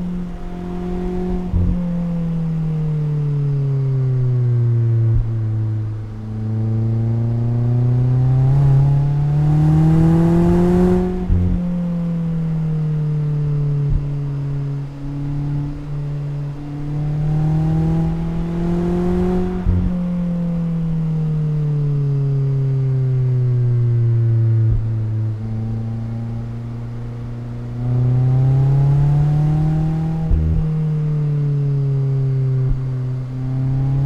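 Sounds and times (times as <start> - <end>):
car engine accelerating: 0.0 - 34.0
gear change thump: 5.0 - 6.2, 13.7 - 20.2, 24.6 - 25.1, 29.5 - 30.8.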